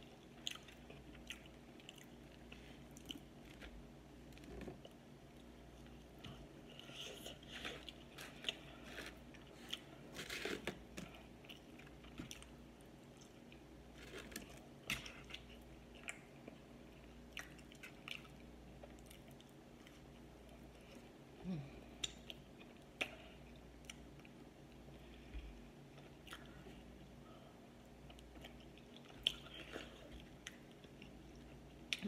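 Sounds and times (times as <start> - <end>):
chewing and lip-smacking: 0.1 - 3.6, 14.3 - 21.1, 25.9 - 26.9.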